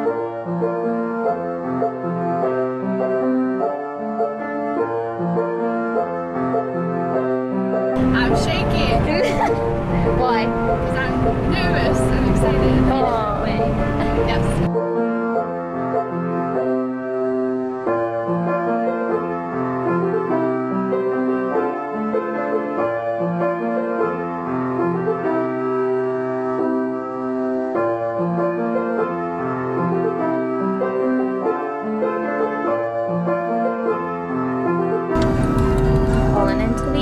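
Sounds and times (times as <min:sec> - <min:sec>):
piano piece: 0:00.0 - 0:37.0.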